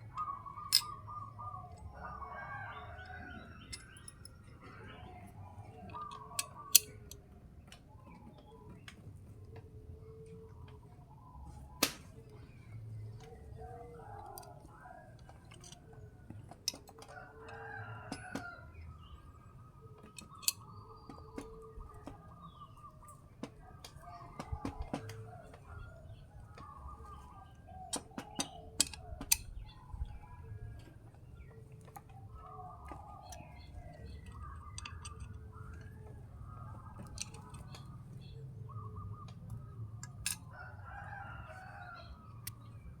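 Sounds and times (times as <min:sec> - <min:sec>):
rooster crowing: 0:01.9 - 0:03.6, 0:17.1 - 0:18.7, 0:40.5 - 0:42.3
chickens calling: 0:12.4 - 0:43.0.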